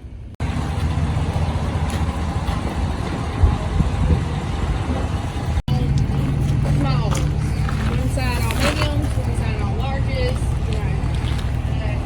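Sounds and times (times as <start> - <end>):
car engine running: 0.4 - 12.0.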